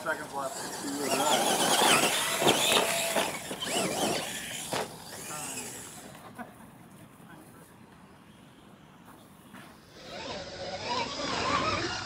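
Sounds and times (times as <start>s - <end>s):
toy truck electric motors whining: 0.0s - 6.2s, 9.8s - 12.0s.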